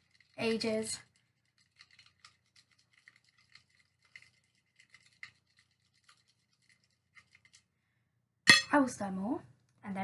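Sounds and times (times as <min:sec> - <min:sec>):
pen stirring thick slime: 0:00.0 - 0:07.7.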